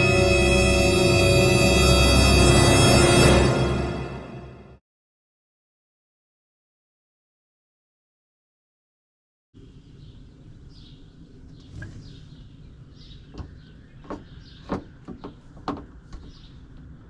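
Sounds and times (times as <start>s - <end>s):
small birds chirping: 9.6s - 17.0s
sharp knocks: 13.3s - 16.3s.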